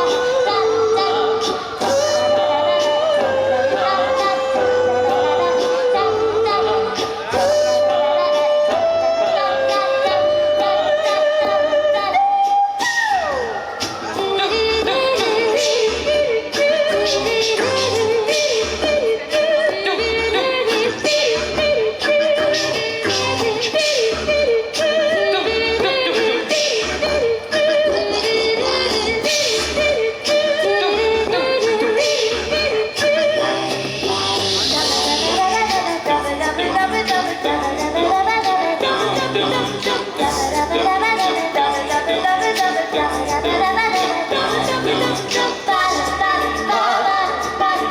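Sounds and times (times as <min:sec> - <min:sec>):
a cappella choir singing: 0:00.0 - 0:12.2, 0:12.8 - 0:47.9
small choir singing in harmony: 0:33.1 - 0:47.9.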